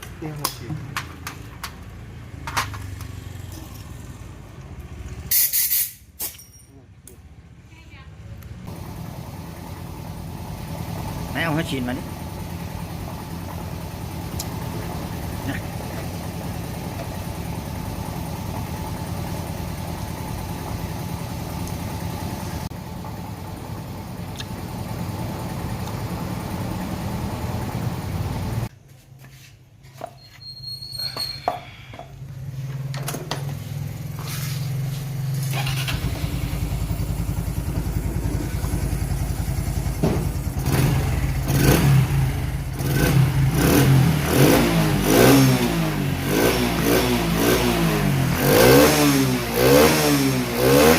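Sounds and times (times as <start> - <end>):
small motorcycle engine running: 33.7 - 50.9.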